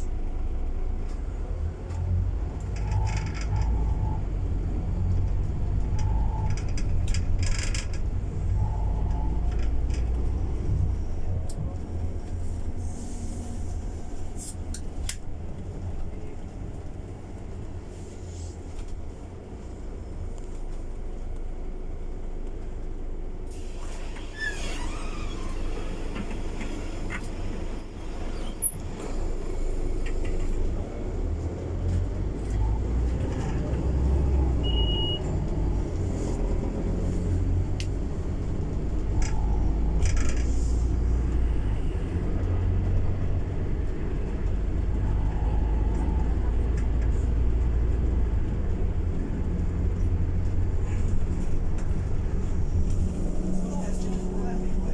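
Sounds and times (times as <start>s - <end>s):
bus engine rumbling: 0.0s - 54.9s
short high beep: 34.6s - 35.2s.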